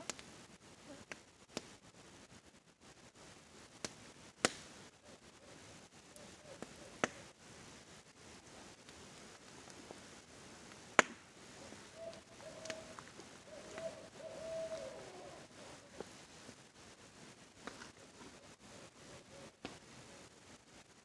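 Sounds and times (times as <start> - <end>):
campfire crackling and popping: 0.0 - 21.0
owl hooting faintly: 4.9 - 7.4, 11.4 - 16.5, 17.7 - 20.4.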